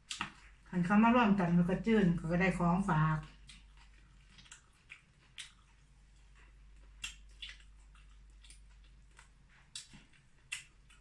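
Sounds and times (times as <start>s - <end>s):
person chewing food: 0.0s - 0.7s, 3.2s - 11.0s
low steady hum: 0.0s - 11.0s.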